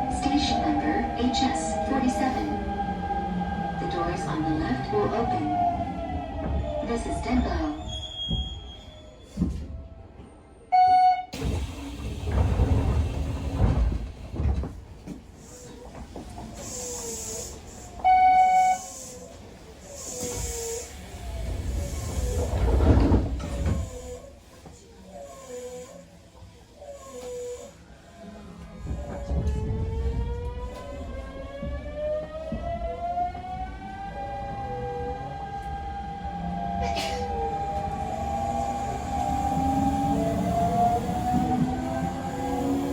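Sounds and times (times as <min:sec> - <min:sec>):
train car rumbling: 0:00.0 - 0:10.7, 0:11.4 - 0:42.9.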